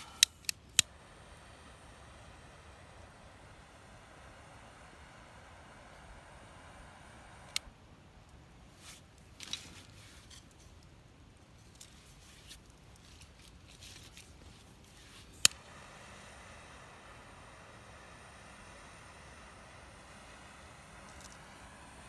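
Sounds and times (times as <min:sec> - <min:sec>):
wood fire crackling: 0:00.0 - 0:07.7, 0:15.0 - 0:22.0.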